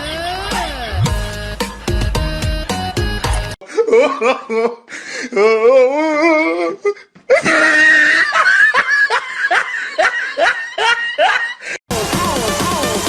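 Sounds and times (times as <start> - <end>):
person laughing: 3.6 - 11.8.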